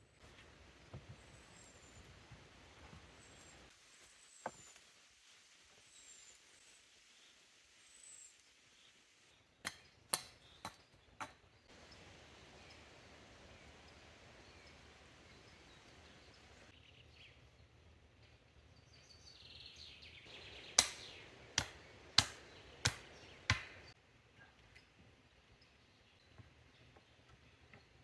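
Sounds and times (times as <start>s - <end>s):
chopping strikes on wood: 20.8s - 23.9s.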